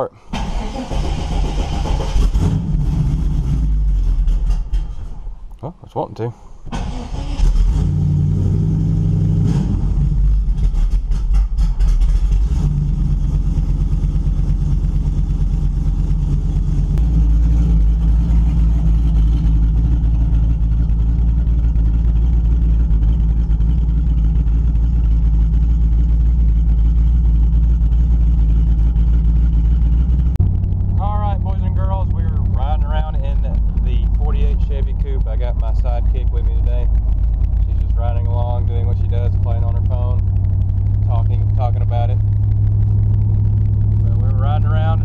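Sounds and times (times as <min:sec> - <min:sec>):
car engine idling unevenly: 0:00.0 - 0:08.3, 0:09.7 - 0:45.0.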